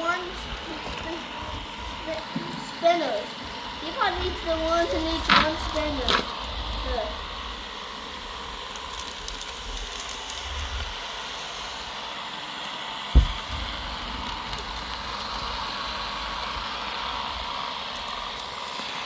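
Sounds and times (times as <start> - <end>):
robot vacuum humming: 0.0 - 19.0
loud thump: 13.1 - 14.2.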